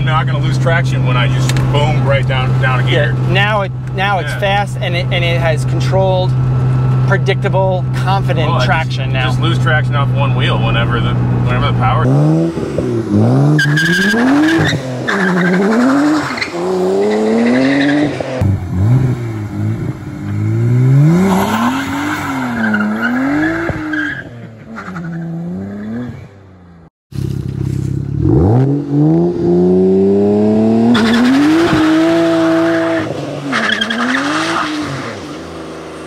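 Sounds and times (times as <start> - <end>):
car engine revving hard: 7.9 - 24.4, 28.2 - 36.0.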